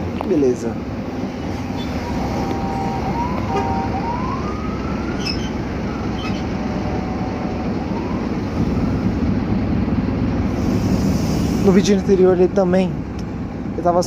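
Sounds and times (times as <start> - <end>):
bus engine and road rumble: 0.0 - 14.0
rising whine: 1.2 - 11.5.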